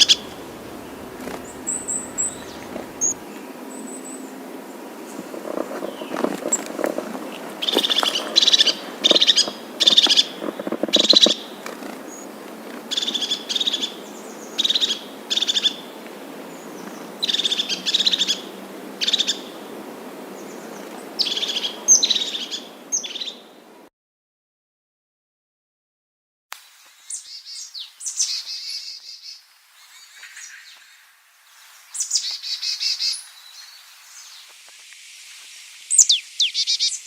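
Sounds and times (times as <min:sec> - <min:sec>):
bird trilling: 0:00.0 - 0:03.3, 0:07.6 - 0:12.2.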